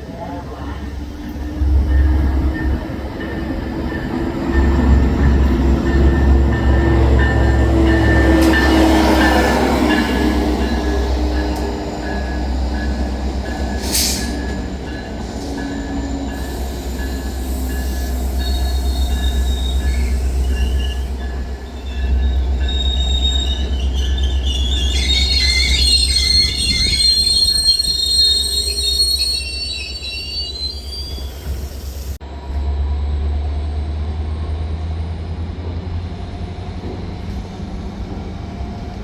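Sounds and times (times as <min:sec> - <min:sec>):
train rumbling on tracks: 0:00.0 - 0:39.0
wheels squealing: 0:04.5 - 0:32.2.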